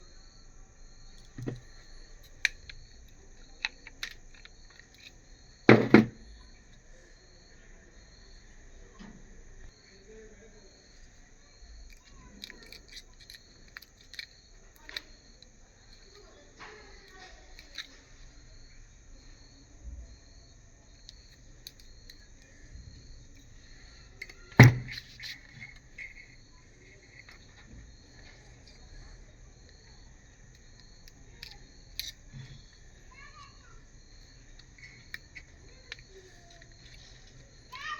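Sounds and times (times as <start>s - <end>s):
small clicks and handling noises: 1.2s - 5.2s, 11.0s - 18.3s, 20.9s - 22.6s, 23.3s - 37.9s
sharp knock: 5.7s - 6.2s.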